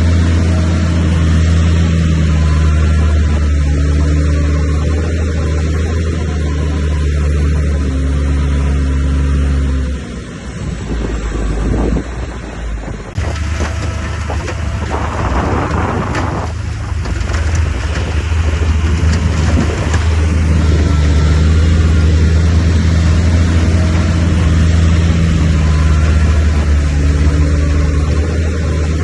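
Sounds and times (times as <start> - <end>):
bulldozer diesel engine running: 0.0 - 29.0
rock and dirt being pushed: 13.2 - 29.0.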